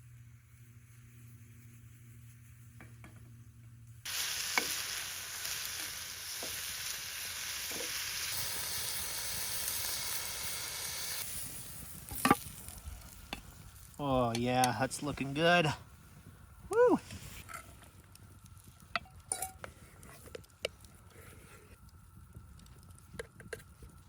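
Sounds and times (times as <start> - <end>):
food sizzling on a grill: 4.0 - 15.8, 16.7 - 17.8.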